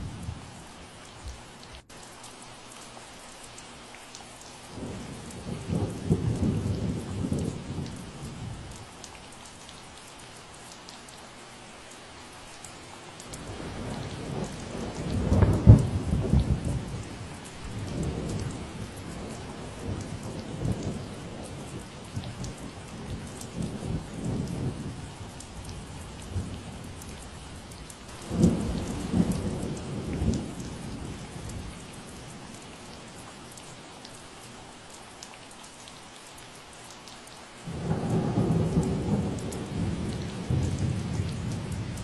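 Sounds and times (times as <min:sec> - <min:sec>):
steady rain: 0:00.0 - 0:42.0
thunder rumbling: 0:13.4 - 0:27.6, 0:28.2 - 0:32.9, 0:37.7 - 0:42.0.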